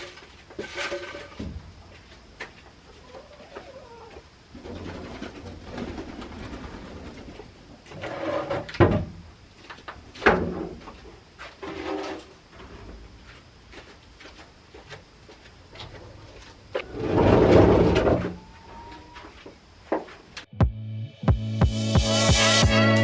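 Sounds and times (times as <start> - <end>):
hens clucking softly: 2.8 - 7.5.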